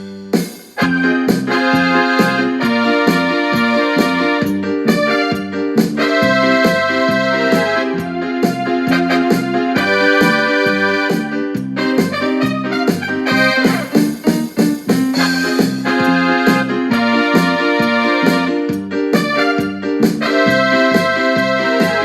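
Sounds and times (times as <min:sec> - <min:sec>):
keyboard sequencer music: 0:00.0 - 0:22.0
pulsing bass line: 0:00.8 - 0:14.5.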